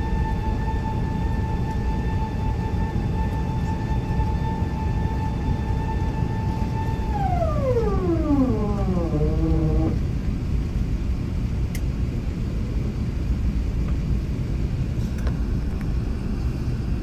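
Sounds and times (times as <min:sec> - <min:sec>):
falling whine: 0:00.0 - 0:10.3
airplane cabin rumble: 0:00.0 - 0:17.0.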